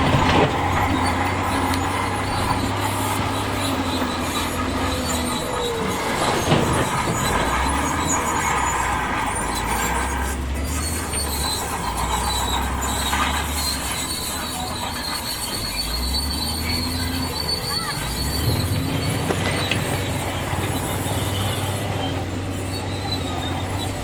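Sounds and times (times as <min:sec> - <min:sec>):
bulldozer diesel engine: 0:00.0 - 0:24.0
steel tracks squealing and clanking: 0:00.0 - 0:24.0
high thin squeal: 0:00.6 - 0:24.0.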